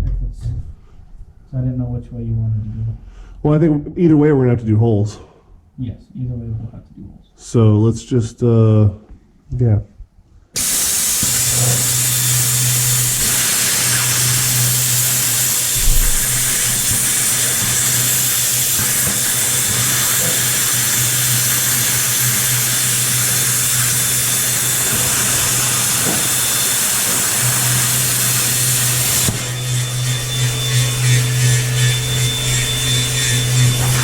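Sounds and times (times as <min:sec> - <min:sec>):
power tool hissing and humming: 0:10.6 - 0:34.0.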